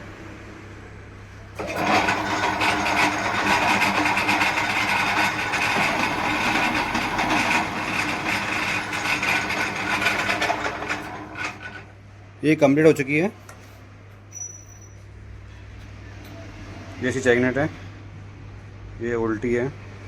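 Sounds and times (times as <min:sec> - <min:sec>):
machine scraping metal: 0:01.6 - 0:12.0.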